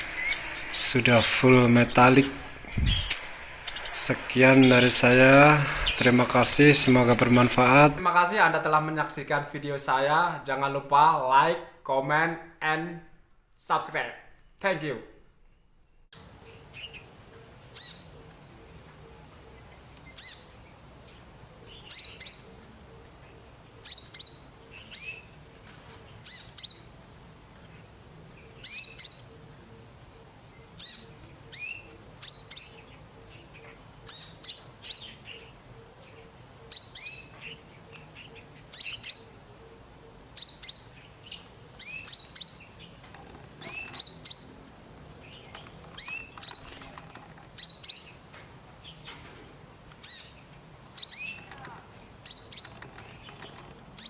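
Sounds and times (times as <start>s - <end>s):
sunbird high chirps: 0.0s - 8.0s.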